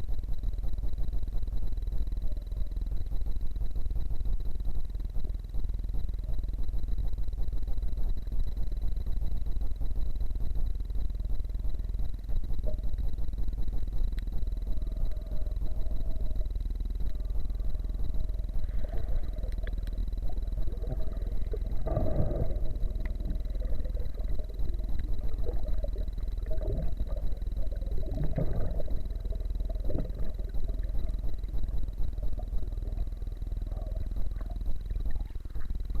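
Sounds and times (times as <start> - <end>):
faint constant whine: 0.0 - 36.0
underwater low rumble: 0.0 - 36.0
water gurgling: 17.2 - 36.0.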